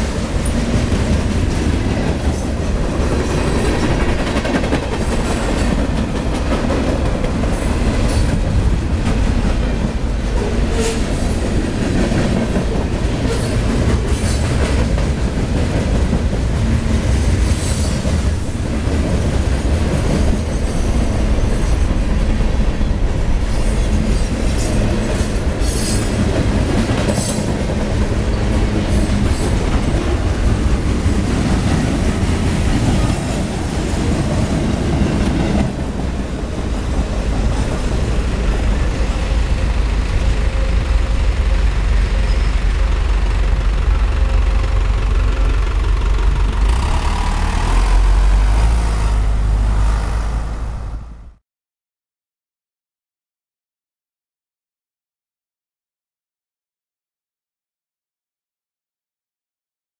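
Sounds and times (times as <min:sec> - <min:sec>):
train wheels clattering on rails: 0:00.0 - 0:50.2
wheel squeals: 0:42.2 - 0:42.7.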